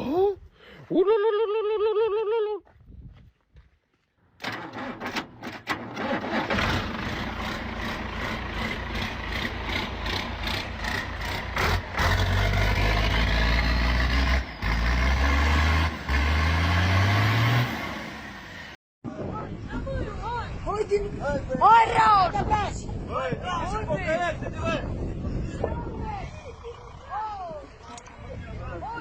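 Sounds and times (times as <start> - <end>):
loud low engine revving: 5.9 - 18.8.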